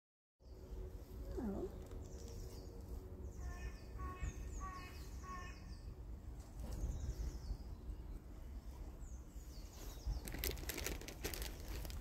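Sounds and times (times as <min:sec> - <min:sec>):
harsh bird calls: 0:01.4 - 0:07.7.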